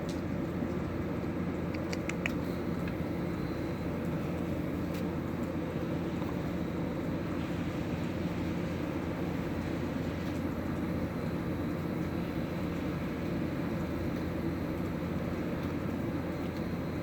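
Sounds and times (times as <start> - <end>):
faint light clicks: 1.7 - 3.0.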